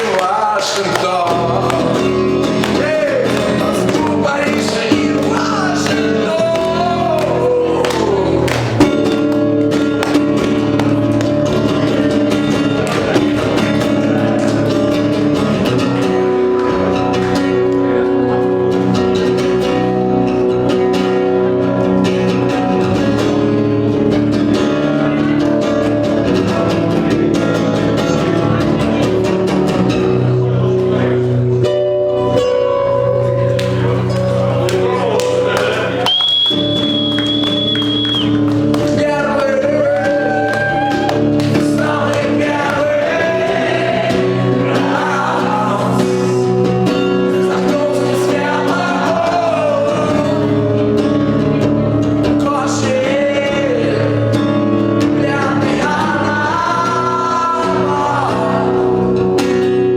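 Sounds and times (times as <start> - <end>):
person singing: 0.0 - 9.4, 38.6 - 51.0, 52.2 - 59.3
acoustic guitar strumming: 0.0 - 59.9.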